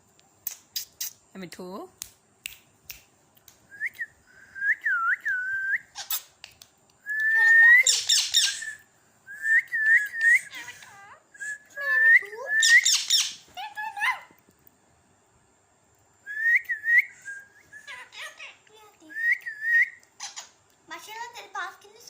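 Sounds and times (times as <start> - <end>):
parrot whistling: 7.1 - 13.4.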